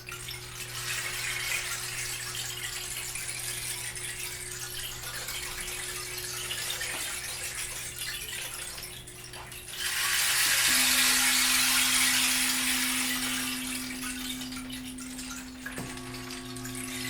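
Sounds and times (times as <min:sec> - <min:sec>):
steady drone tone: 0:10.6 - 0:17.0.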